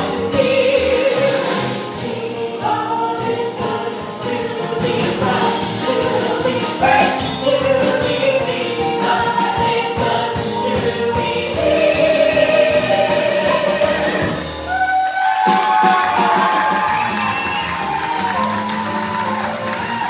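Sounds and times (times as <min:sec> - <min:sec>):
voices singing together: 0:00.0 - 0:14.8
instrumental accompaniment with beat: 0:00.0 - 0:20.0.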